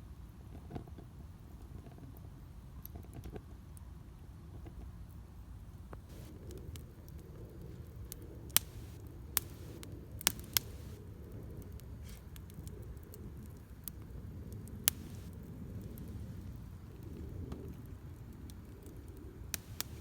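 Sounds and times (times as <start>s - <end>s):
fire rushing: 6.1s - 6.8s, 8.5s - 11.0s, 14.7s - 16.5s, 19.5s - 20.0s
wood crackling and popping: 6.1s - 11.0s, 11.6s - 16.2s, 18.6s - 20.0s.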